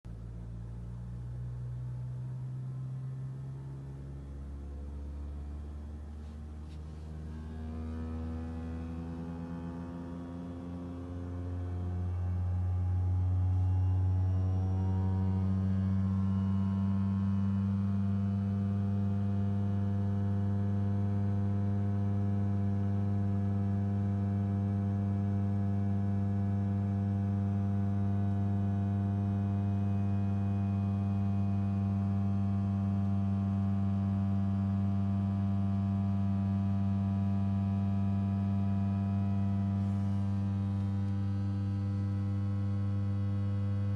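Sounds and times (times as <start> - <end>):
blower fan humming and whining: 35.5 - 43.9.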